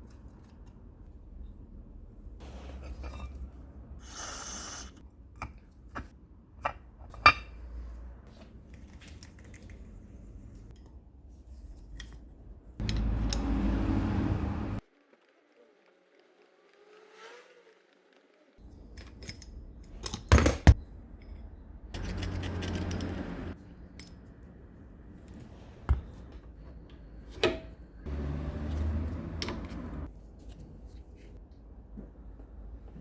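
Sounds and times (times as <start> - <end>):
small metal parts clinking: 22.0 - 23.3.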